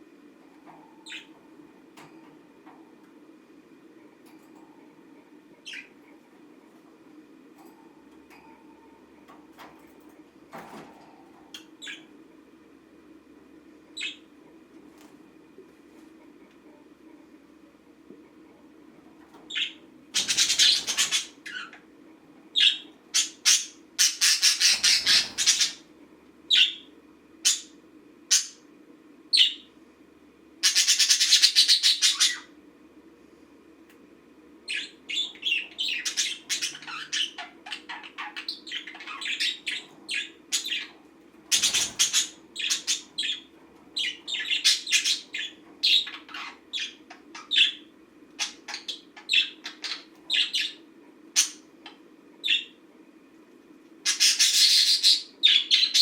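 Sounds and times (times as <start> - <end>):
budgerigar chattering and squawking: 19.5 - 21.7, 22.6 - 25.8, 30.6 - 32.5, 34.7 - 47.8, 54.1 - 56.0.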